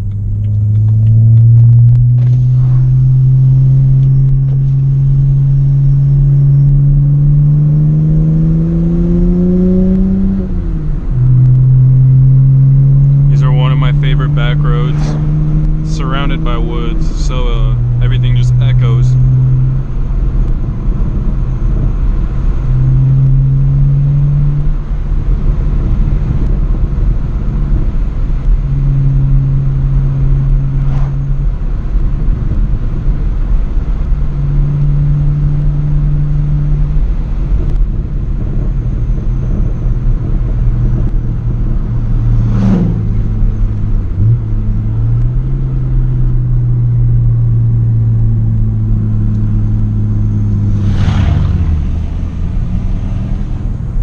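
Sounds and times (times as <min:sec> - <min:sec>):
car exhaust droning: 0:00.0 - 0:54.0
short sharp sounds: 0:13.4 - 0:19.0, 0:50.6 - 0:52.7.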